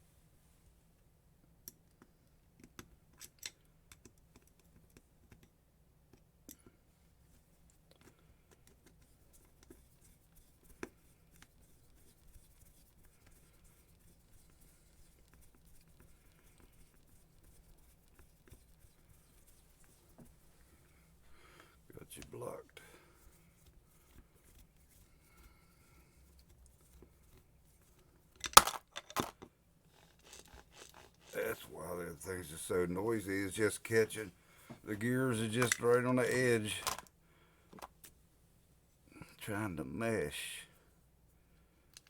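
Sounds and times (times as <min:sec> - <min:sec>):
light clicks and taps: 0:01.6 - 0:06.8.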